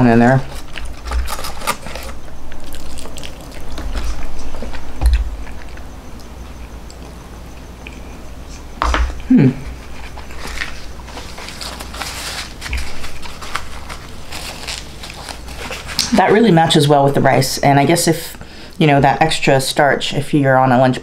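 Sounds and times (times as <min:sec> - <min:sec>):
chewing food: 0:00.5 - 0:08.1
person humming: 0:09.2 - 0:09.8.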